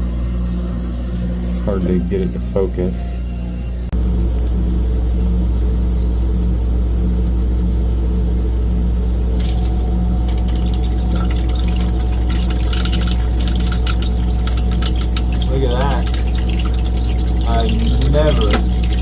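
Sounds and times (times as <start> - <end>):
pump humming: 9.2 - 19.0
water splashing and trickling: 9.4 - 19.0.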